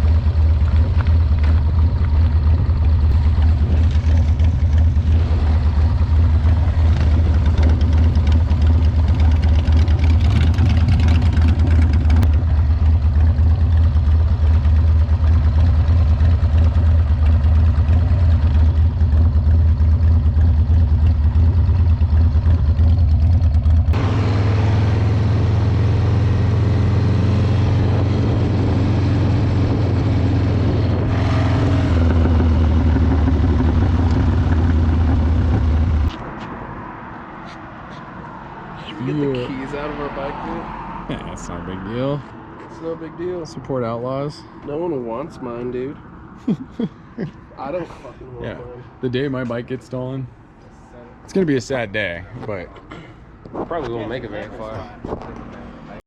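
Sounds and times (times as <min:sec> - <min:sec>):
motorcycle engine running: 0:00.0 - 0:36.3.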